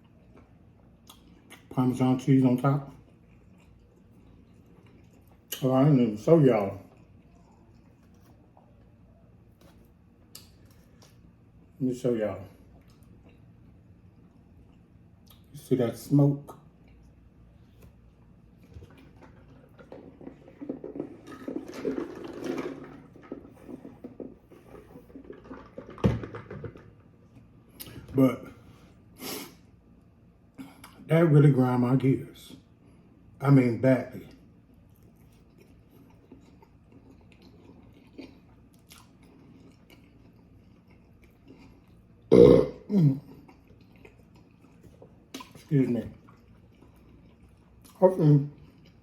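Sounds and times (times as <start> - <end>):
wet chewing and eating: 0.0 - 11.8, 12.5 - 15.6, 16.4 - 31.0, 34.2 - 49.0
loud burps: 42.3 - 43.3.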